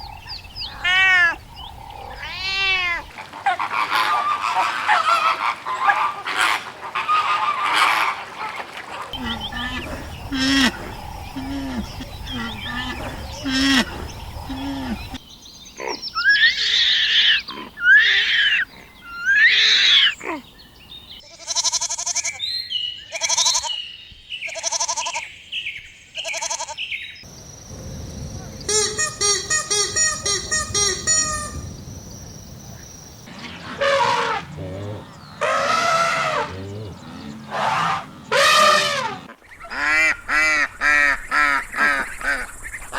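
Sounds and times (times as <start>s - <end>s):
farm animals calling: 0.0s - 15.2s, 15.8s - 25.4s, 26.2s - 42.5s
quavering bleats: 9.2s - 10.8s, 21.2s - 22.4s, 23.1s - 23.8s, 24.5s - 25.3s, 26.2s - 26.8s, 33.4s - 40.1s.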